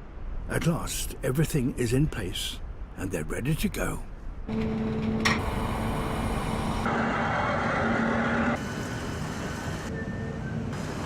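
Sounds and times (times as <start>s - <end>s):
machinery hum: 4.5s - 11.0s.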